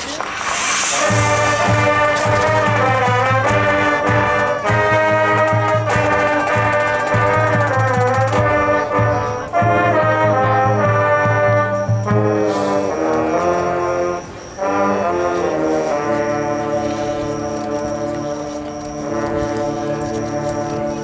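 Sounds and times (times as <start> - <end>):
sharp percussion strokes: 0.0 - 13.0
brass chords: 0.0 - 21.0
marching band playing: 0.0 - 21.0
low bass pulse: 0.6 - 6.7.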